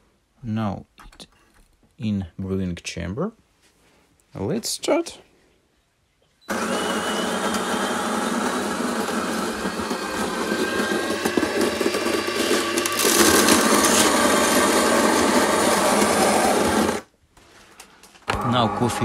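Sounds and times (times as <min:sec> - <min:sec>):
coffee grinder grinding beans: 0:06.5 - 0:17.1, 0:18.3 - 0:19.0.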